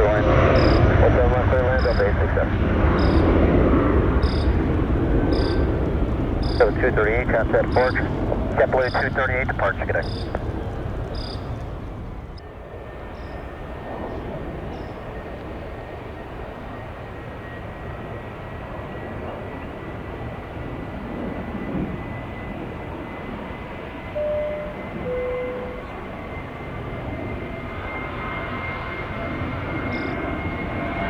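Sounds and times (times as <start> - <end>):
jet engine rumble and hiss: 0.0 - 31.0
short beeps: 3.0 - 3.3, 4.2 - 4.5, 5.4 - 5.6, 24.1 - 26.0.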